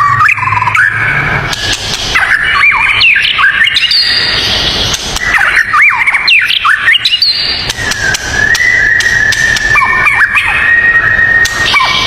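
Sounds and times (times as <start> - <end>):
songbird singing whistled phrases: 0.0 - 12.0.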